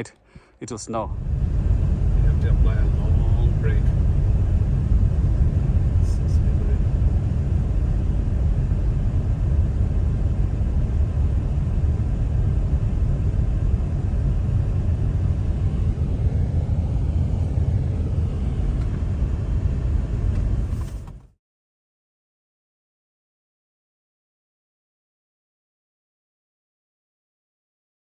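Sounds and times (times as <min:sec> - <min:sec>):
low outdoor rumble: 0:00.0 - 0:21.3.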